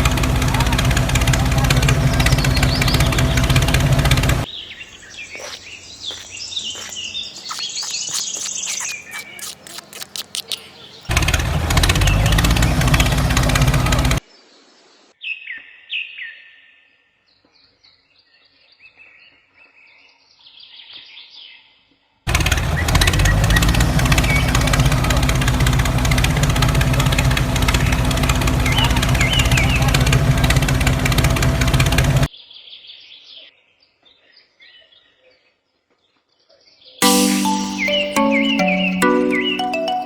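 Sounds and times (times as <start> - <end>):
loud engine running: 0.0 - 4.4, 11.1 - 14.2, 22.3 - 32.3
bird-like chirps: 4.4 - 11.1.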